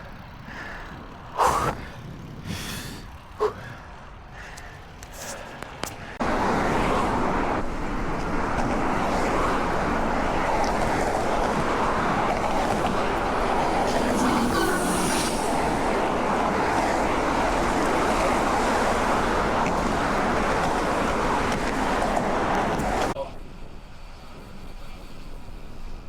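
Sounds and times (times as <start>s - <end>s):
road rumble: 0.0s - 26.0s
wind on microphone: 0.2s - 3.4s.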